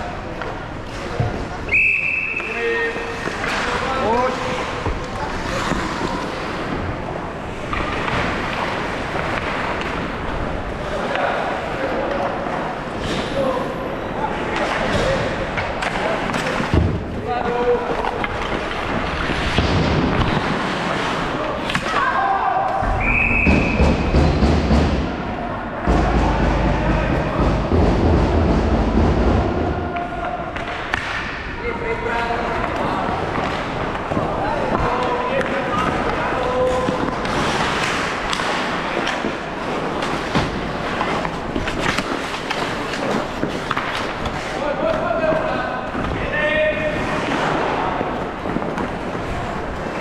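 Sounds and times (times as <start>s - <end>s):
rink crowd din: 0.0s - 50.0s
skates scraping on ice: 3.0s - 13.3s, 17.5s - 22.0s, 35.7s - 46.1s
sticks and puck hitting boards: 25.8s - 31.4s, 32.6s - 50.0s.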